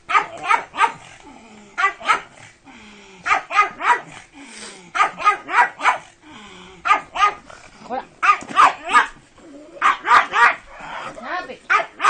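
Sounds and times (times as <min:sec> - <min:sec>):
dog barking: 0:00.1 - 0:01.1, 0:01.8 - 0:02.4, 0:03.2 - 0:04.2, 0:05.0 - 0:06.1, 0:06.8 - 0:07.4, 0:08.2 - 0:09.2, 0:09.8 - 0:10.7, 0:11.7 - 0:12.0.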